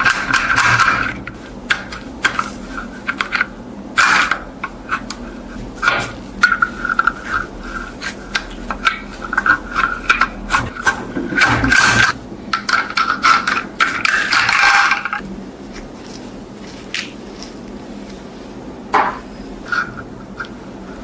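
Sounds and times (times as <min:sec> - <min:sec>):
scraping and rubbing: 0:00.0 - 0:12.2
thin steady whine: 0:00.0 - 0:21.0.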